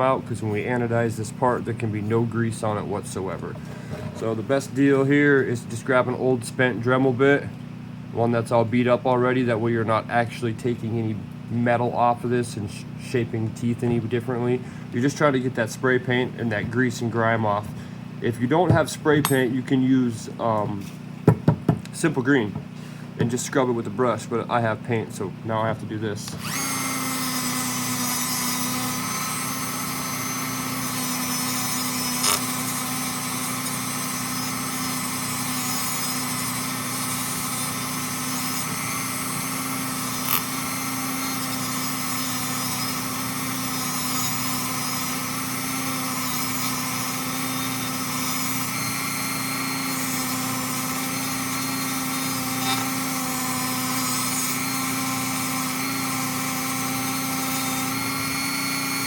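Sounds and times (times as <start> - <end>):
rotary tool running: 3.6 - 4.4, 26.3 - 59.0.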